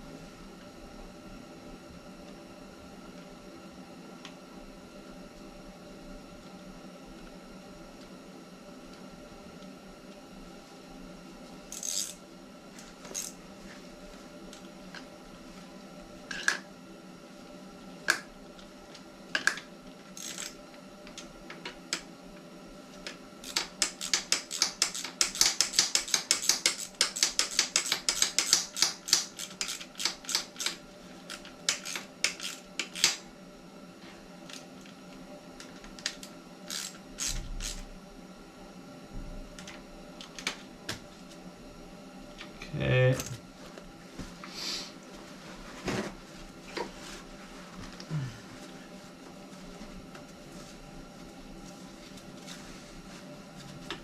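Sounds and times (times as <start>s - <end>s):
ratchet wrench clicking rapidly: 11.7s - 12.2s, 20.2s - 20.5s, 23.4s - 33.2s, 36.7s - 37.8s.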